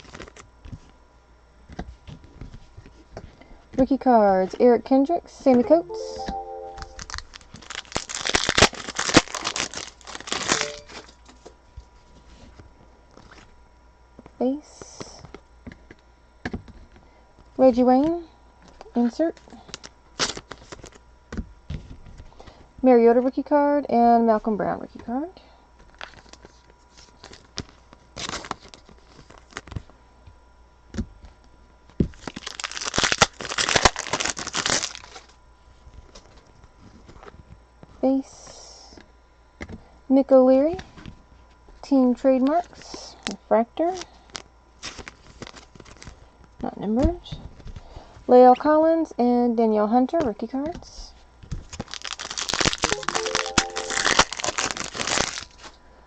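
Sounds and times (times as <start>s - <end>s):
foil wrapper tearing and crinkling: 0.0s - 0.5s, 7.0s - 11.1s, 19.6s - 21.0s, 25.9s - 29.8s, 32.1s - 35.4s, 42.6s - 46.2s, 51.7s - 55.7s.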